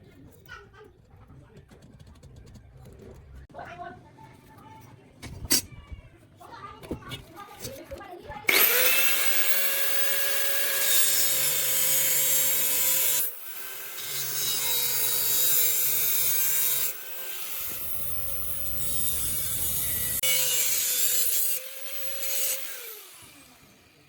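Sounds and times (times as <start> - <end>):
power tool rasping: 8.5 - 24.0.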